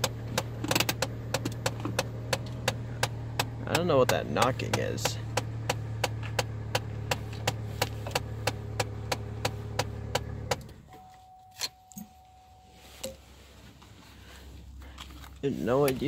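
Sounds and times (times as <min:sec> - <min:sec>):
car engine idling with knock: 0:00.0 - 0:11.1
faint steady tone: 0:10.9 - 0:13.6.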